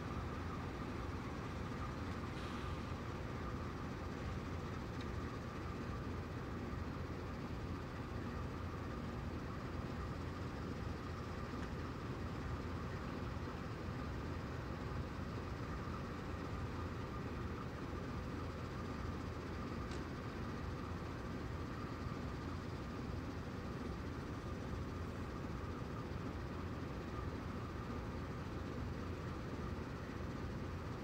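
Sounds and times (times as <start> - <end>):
freight train rumbling: 0.0 - 6.8
faint tick: 5.0 - 5.2, 11.6 - 11.8, 19.8 - 20.1.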